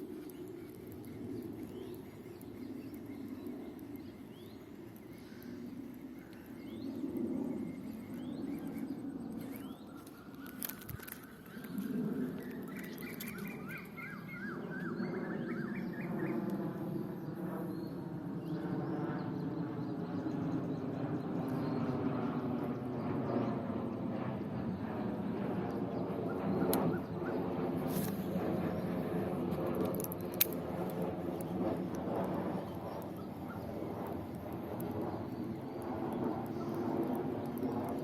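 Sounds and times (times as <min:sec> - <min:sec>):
birds chirping: 0:00.0 - 0:17.9
repeated bird calls: 0:00.0 - 0:17.9
steady low rumble: 0:00.0 - 0:38.0.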